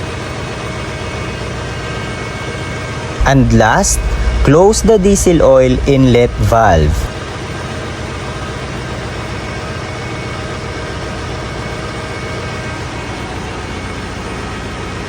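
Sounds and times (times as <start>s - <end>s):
engine room machinery drone: 3.2s - 7.3s.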